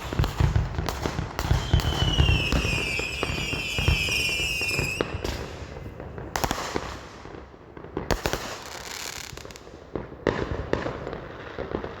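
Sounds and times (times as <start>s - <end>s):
fireworks crackling pops: 0.0s - 12.0s.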